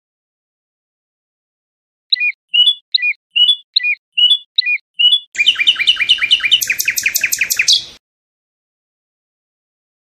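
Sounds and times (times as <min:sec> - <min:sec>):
nightingale singing: 0:02.1 - 0:08.0.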